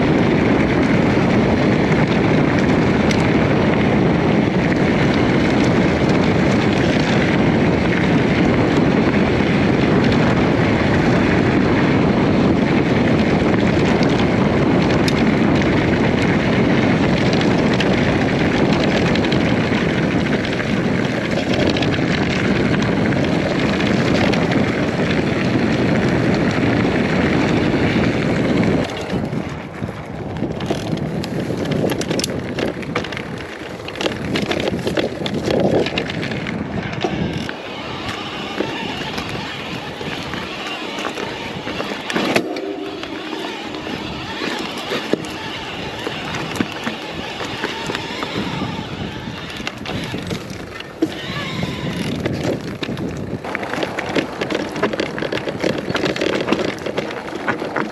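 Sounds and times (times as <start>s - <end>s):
tyres rolling over rough ground: 0.0s - 57.9s
wind rushing over microphone: 0.0s - 57.9s.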